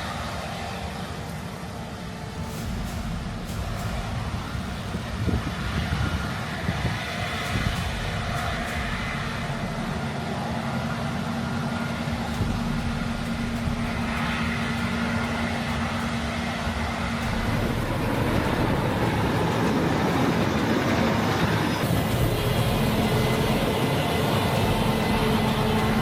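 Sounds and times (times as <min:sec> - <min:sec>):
engine hum: 0:02.2 - 0:26.0
heavy farm machinery running: 0:02.2 - 0:26.0.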